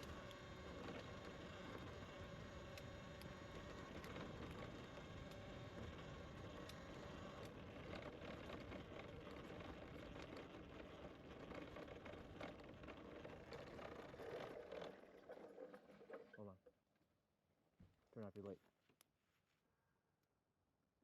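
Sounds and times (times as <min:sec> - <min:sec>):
bicycle tyres rolling: 0:00.0 - 0:16.4.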